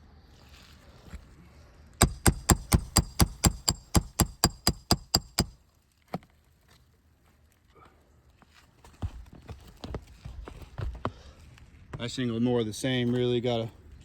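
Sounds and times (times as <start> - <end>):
hammer striking metal: 2.0 - 5.6
lone knock: 2.0 - 5.6.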